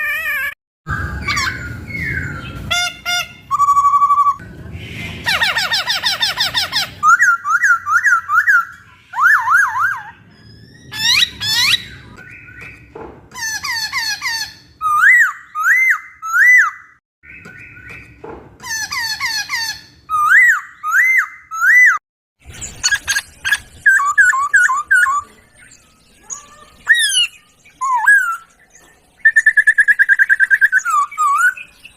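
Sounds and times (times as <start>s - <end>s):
bird singing whistled notes: 3.4s - 4.4s, 22.6s - 31.9s.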